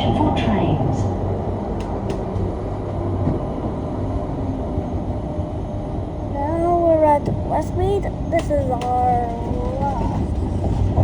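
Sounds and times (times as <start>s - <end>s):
tram rumbling: 0.0s - 11.0s
person speaking: 6.4s - 10.2s.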